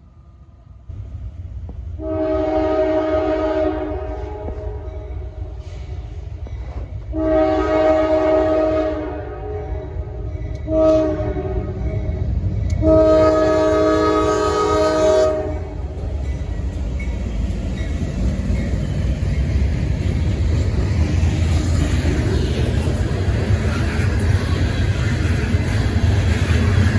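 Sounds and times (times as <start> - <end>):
train rumble: 0.0 - 26.9
locomotive air horn blasts: 2.0 - 4.9, 7.1 - 9.9, 10.6 - 11.8, 12.8 - 15.8.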